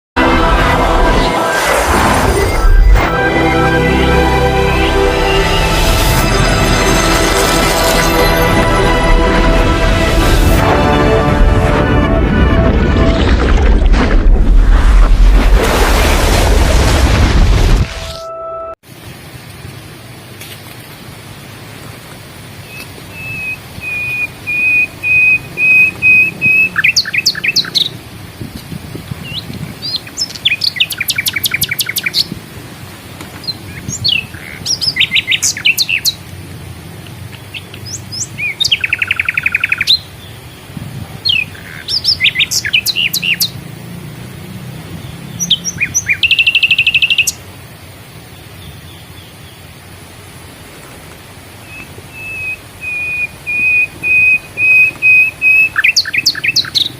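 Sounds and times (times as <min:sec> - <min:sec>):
songbird singing: 0:22.6 - 0:28.0, 0:29.2 - 0:32.4, 0:33.3 - 0:36.2, 0:37.0 - 0:43.6, 0:44.9 - 0:47.4, 0:48.3 - 0:49.8, 0:51.6 - 0:56.9.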